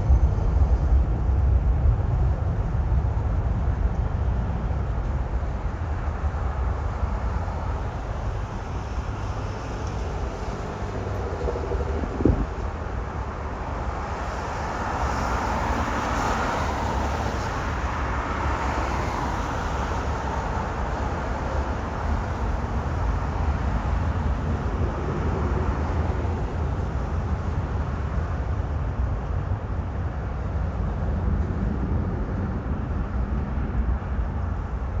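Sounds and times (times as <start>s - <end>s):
steady low rumble: 0.0s - 15.4s, 20.1s - 35.0s
jet engines drone: 0.0s - 35.0s.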